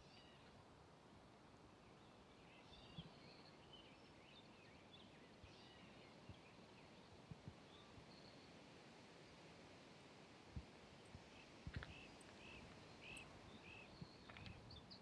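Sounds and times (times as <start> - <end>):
soft footfalls on a trail: 10.6 - 12.9.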